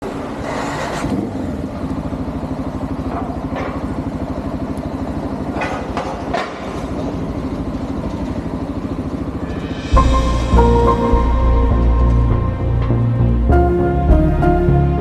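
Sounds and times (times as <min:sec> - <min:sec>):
engine idling: 0:00.2 - 0:10.6.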